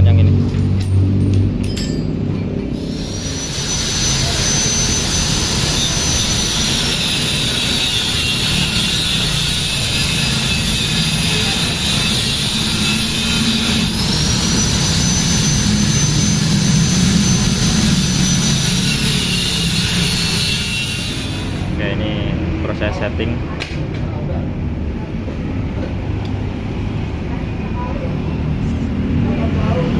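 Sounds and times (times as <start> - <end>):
angle grinder cutting metal pipe: 2.8 - 22.2.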